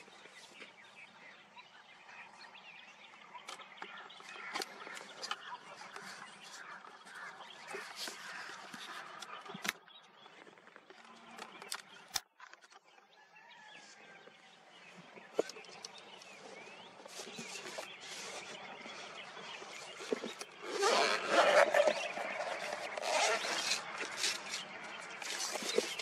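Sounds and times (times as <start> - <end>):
birds calling and chirping: 0.0 - 26.0.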